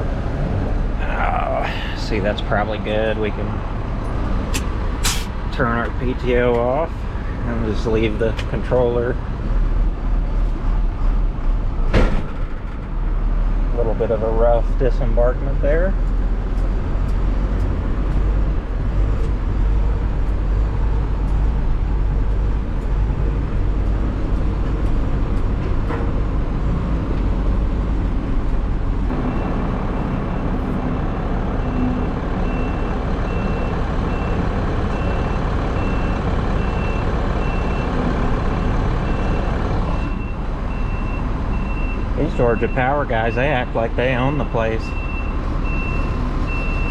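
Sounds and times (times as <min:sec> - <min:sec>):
heavy vehicle engine running: 0:00.0 - 0:46.9
reversing alarm beeping: 0:38.6 - 0:43.0, 0:44.4 - 0:46.9.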